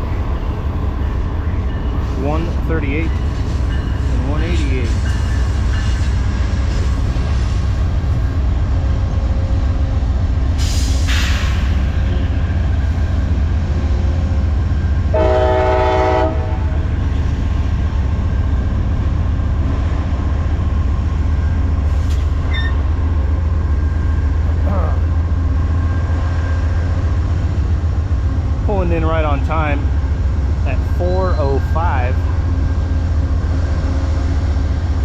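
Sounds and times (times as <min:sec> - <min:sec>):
diesel locomotives rumbling: 0:00.0 - 0:35.0
train horn blast: 0:15.1 - 0:16.8.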